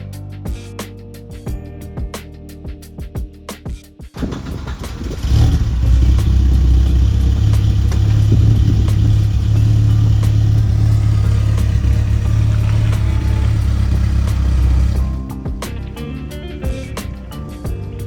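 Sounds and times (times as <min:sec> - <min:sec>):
car engine running: 0:04.2 - 0:17.6.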